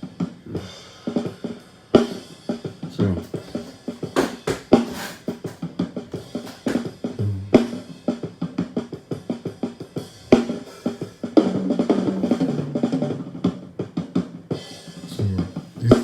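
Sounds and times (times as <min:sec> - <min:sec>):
cymbals: 0:00.0 - 0:13.4, 0:14.5 - 0:16.0
kick drum: 0:02.9 - 0:07.8
snare drum hits: 0:03.0 - 0:07.8, 0:15.6 - 0:16.0.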